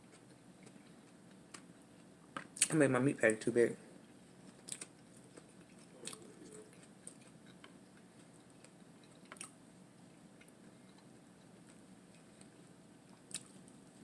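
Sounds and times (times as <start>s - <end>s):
chewing and mouth sounds: 4.3s - 13.9s.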